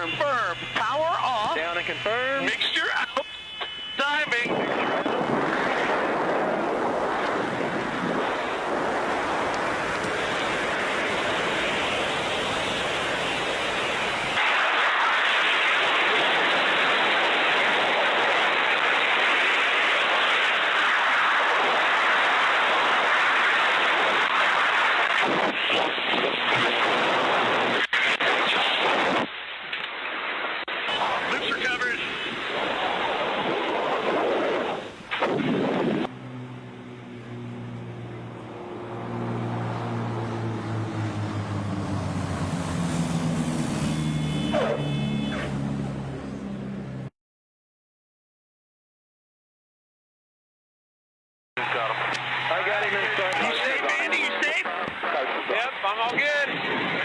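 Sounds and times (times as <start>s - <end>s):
propeller aircraft engine drone: 0.0s - 27.9s, 30.9s - 47.1s, 51.6s - 57.0s
wind rushing across microphone: 4.3s - 14.4s, 32.0s - 43.8s, 56.1s - 57.0s.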